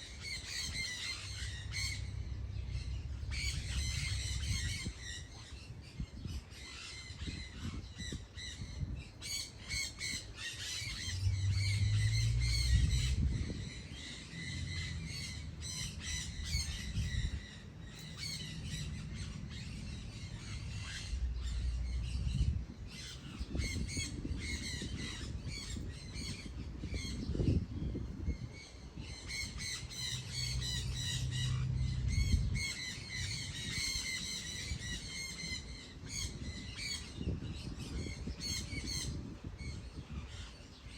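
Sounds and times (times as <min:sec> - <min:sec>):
birds calling: 0:00.0 - 0:40.9
low rumble: 0:00.7 - 0:06.4, 0:10.6 - 0:28.5, 0:29.1 - 0:34.9.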